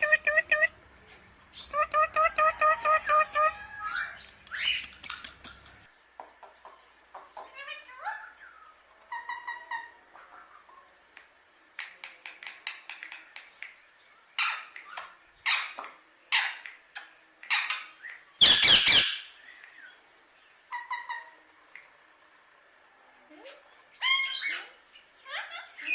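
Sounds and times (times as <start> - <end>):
parakeet squawking and chirping: 1.5 - 5.9, 14.4 - 16.6, 17.5 - 19.3, 24.0 - 25.9.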